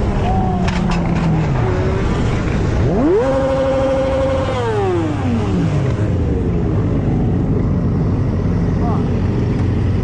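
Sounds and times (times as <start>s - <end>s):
constant low rumble: 0.0s - 10.0s
motorcycle engine revving: 0.3s - 7.3s.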